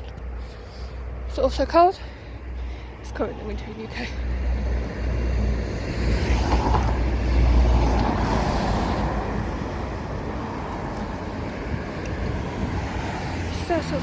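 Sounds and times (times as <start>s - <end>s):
heavy low rumble: 0.0s - 13.7s
car passing by: 3.8s - 14.0s.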